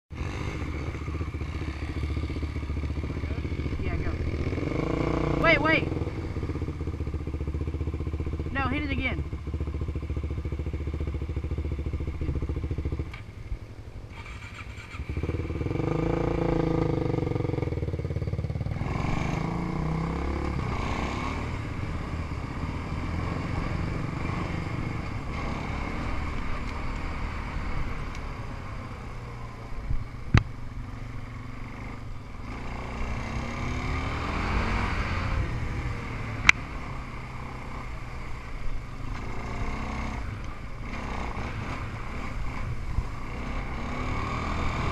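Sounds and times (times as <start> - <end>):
off-road engines revving: 0.1 - 13.2, 14.1 - 29.8, 30.8 - 44.9.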